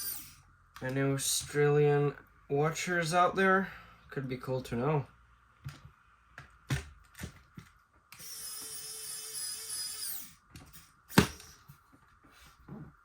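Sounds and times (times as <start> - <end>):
electric screwdriver running: 8.2 - 11.5.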